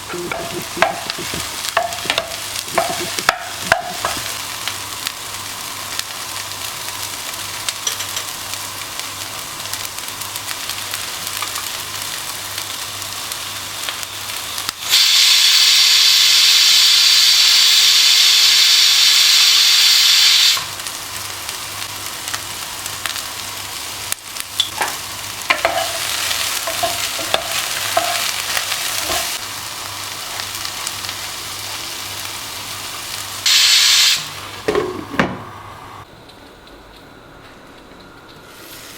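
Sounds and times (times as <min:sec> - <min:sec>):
food sizzling in a pan: 0:00.0 - 0:36.1, 0:38.5 - 0:38.9
utensil tapping a pan: 0:00.2 - 0:04.3.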